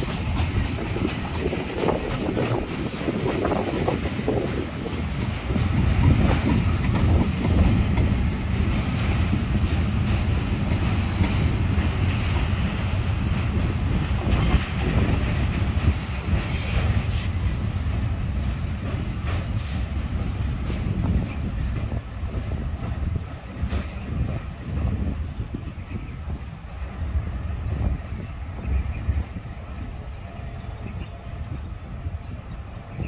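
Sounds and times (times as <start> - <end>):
clacking over rail joints: 0.0 - 26.0
train wheels rumbling: 0.0 - 33.0.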